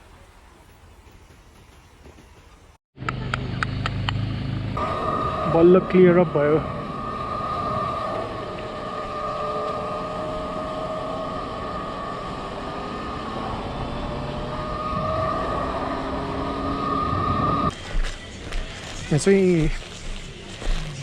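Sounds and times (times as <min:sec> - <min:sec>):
wind and road noise: 0:00.0 - 0:21.0
electric motor whine: 0:04.7 - 0:21.0.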